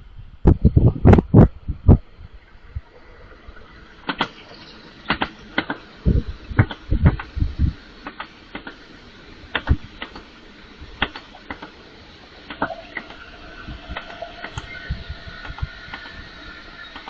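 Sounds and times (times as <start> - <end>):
sharp clicks and knocks: 4.0 - 4.5, 5.1 - 5.8, 6.6 - 7.4, 8.0 - 8.8, 9.5 - 10.3, 11.0 - 11.8.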